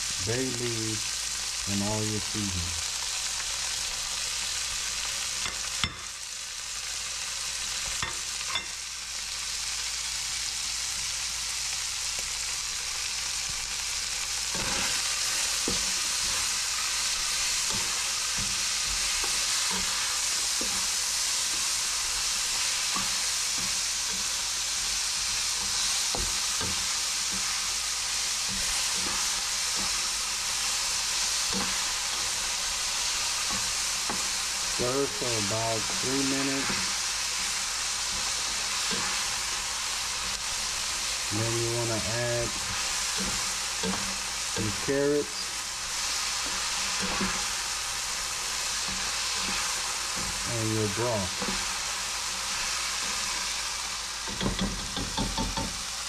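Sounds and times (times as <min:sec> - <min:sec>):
vegetables sizzling in a pan: 0:00.0 - 0:56.0
spoon scraping and tapping pan: 0:54.3 - 0:55.8.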